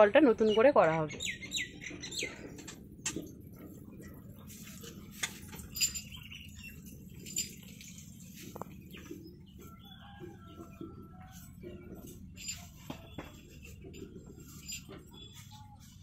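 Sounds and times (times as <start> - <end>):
small clicks and knocks: 2.6 - 4.2.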